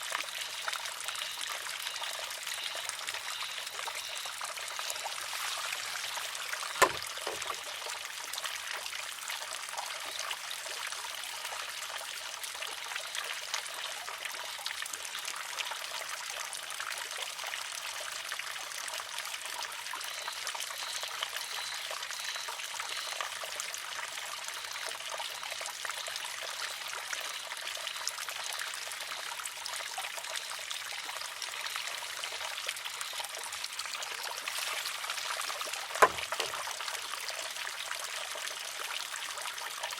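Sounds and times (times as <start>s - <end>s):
water trickling: 0.0s - 39.9s
bamboo arm clacking on rock: 6.6s - 7.7s, 35.8s - 36.8s.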